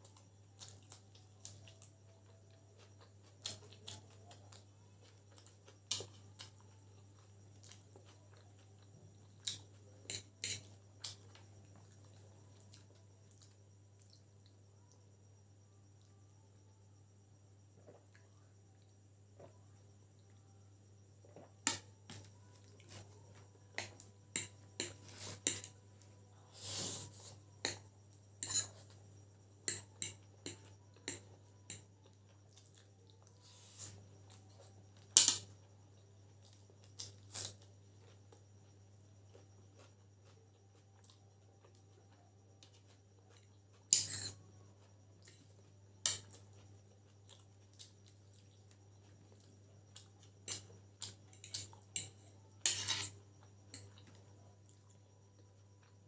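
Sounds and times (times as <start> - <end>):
chewing: 29.7 - 35.1, 36.4 - 56.0.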